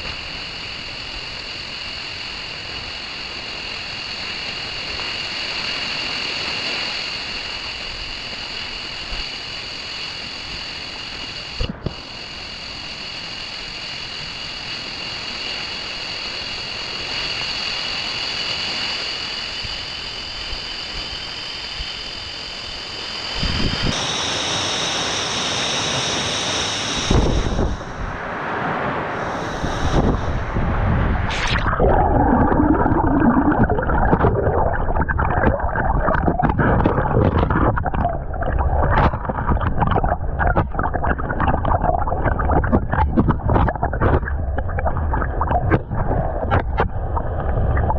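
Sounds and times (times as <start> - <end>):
wind buffeting microphone: 23.4 - 24.0, 27.0 - 28.3, 29.2 - 47.9.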